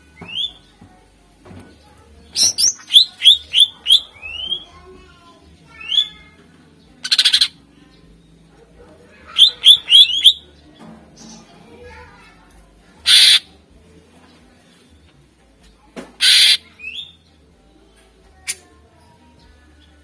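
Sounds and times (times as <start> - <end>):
bird whistling song: 0.2 - 0.6, 2.3 - 4.7, 7.0 - 7.5, 9.3 - 10.4, 13.1 - 13.4, 16.2 - 17.2
bird harsh rattle: 13.0 - 13.4, 16.2 - 16.6.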